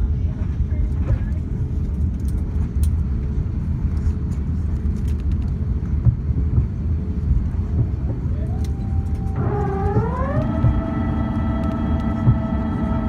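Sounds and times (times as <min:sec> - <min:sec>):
airliner cabin rumble: 0:00.0 - 0:13.0
whine rising in pitch: 0:08.4 - 0:13.0.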